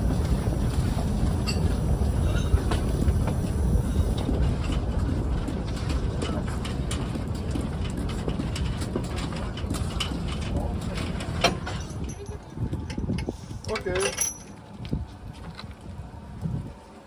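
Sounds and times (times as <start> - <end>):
steam locomotive rumble: 0.0 - 17.0
wheels clicking on rails: 0.0 - 17.0.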